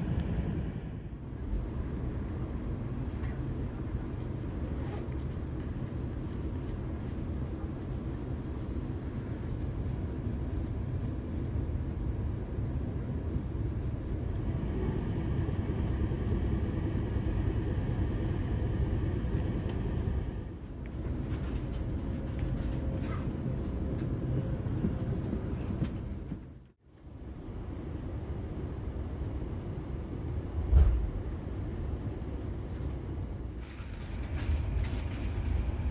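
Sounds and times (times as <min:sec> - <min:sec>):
train coach rumbling on rails: 0:00.0 - 0:04.1, 0:12.0 - 0:26.7, 0:33.4 - 0:35.9
faint whine: 0:00.0 - 0:35.9.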